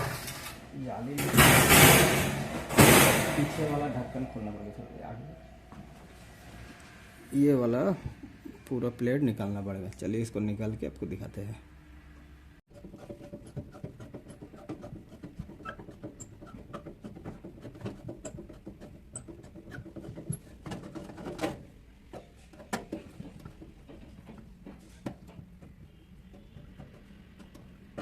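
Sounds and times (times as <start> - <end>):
loud knocks: 1.2 - 3.7.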